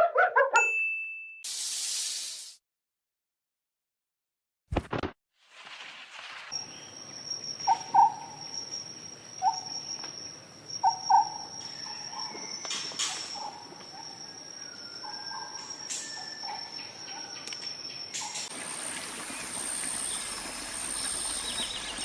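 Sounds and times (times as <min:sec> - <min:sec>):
insect trill: 0:06.3 - 0:22.0.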